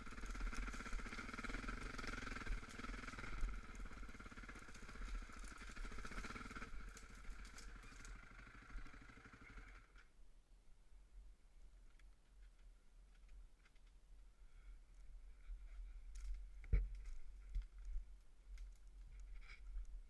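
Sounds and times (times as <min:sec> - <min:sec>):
off-road vehicle engine running: 0:00.0 - 0:10.1.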